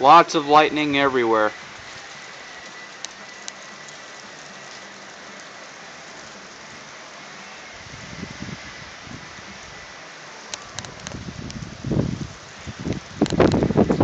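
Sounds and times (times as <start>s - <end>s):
gusty wind: 0.0s - 3.2s, 7.4s - 14.0s
rain: 0.0s - 14.0s.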